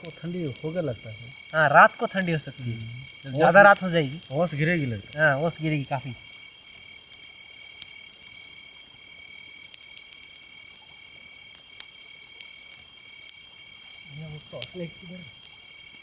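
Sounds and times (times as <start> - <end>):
campfire crackles: 0.0 - 16.0
crickets chirring: 0.0 - 16.0.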